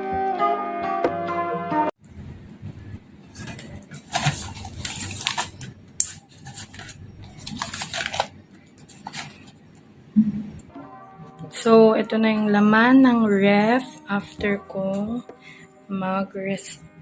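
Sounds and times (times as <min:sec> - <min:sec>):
packages rustling: 0:03.3 - 0:09.7
containers clattering: 0:03.3 - 0:09.8.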